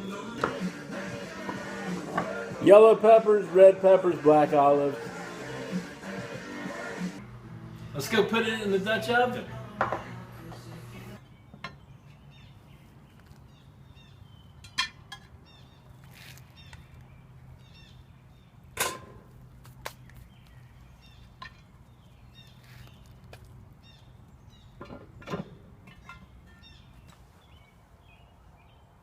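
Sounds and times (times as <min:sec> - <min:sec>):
steady low hum: 0:07.1 - 0:11.2
small birds chirping: 0:11.2 - 0:18.8, 0:19.5 - 0:29.0.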